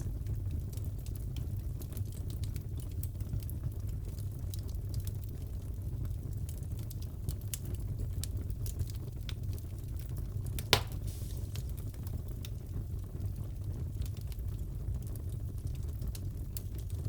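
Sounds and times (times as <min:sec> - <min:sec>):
fireplace fire crackling: 0:00.0 - 0:17.0
loud sharp pop of fire: 0:10.6 - 0:12.0.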